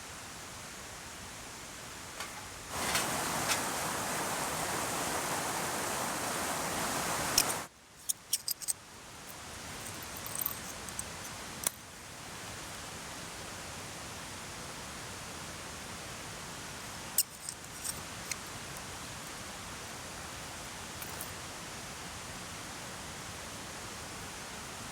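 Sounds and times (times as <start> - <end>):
mountain stream rushing: 2.7 - 7.7
sharp clicks and light clinks: 7.4 - 8.8, 9.8 - 11.8, 17.2 - 18.4.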